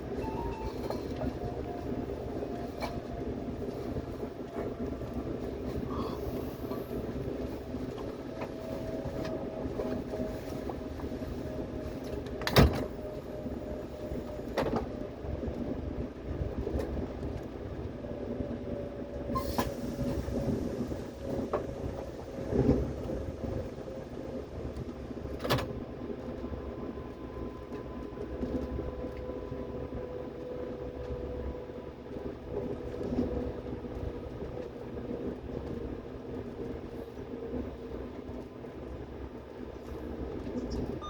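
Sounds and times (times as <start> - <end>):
faint falling whine: 0.0 - 2.0
subway train rumble: 0.0 - 41.0.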